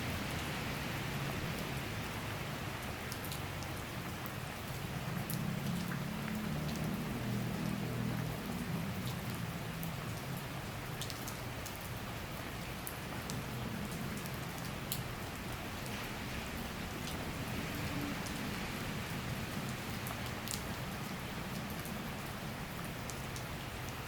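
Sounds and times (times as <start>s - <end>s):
single raindrops ticking: 5.3s - 8.3s.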